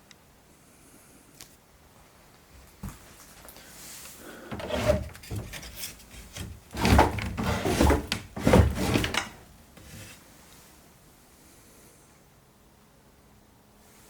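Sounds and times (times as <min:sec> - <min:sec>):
old wood creaking and rubbing: 0:04.5 - 0:10.2
small wood scrapes: 0:04.5 - 0:10.2.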